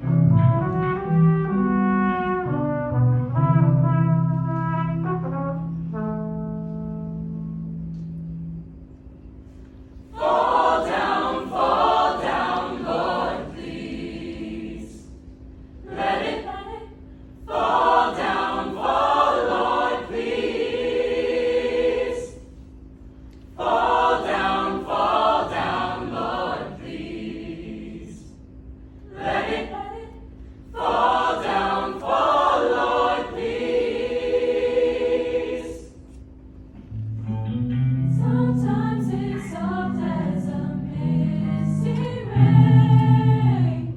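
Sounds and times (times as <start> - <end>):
a cappella choir singing: 10.0 - 22.8, 23.4 - 36.2, 38.0 - 43.9.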